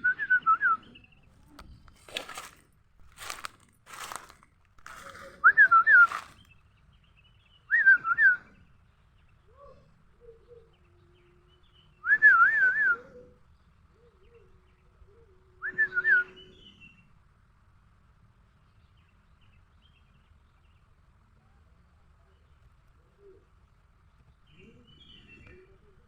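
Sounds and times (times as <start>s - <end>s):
whistled warbling call: 5.4s - 6.4s, 12.0s - 13.2s, 15.6s - 16.6s.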